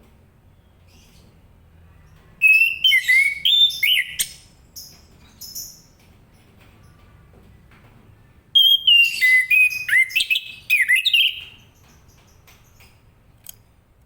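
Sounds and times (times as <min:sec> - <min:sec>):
thrush singing whistled notes: 0:02.4 - 0:05.9, 0:08.6 - 0:12.3.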